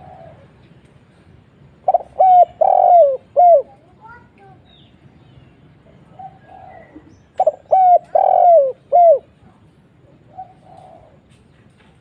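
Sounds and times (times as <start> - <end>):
dove cooing: 0.0 - 0.6, 1.7 - 3.8, 6.0 - 9.4, 10.1 - 11.3.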